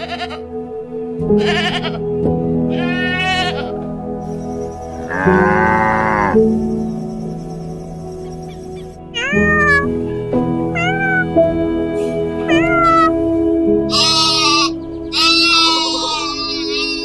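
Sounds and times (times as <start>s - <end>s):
background music: 0.0s - 17.0s
cat meowing: 9.2s - 9.9s, 10.8s - 11.4s, 12.5s - 13.2s.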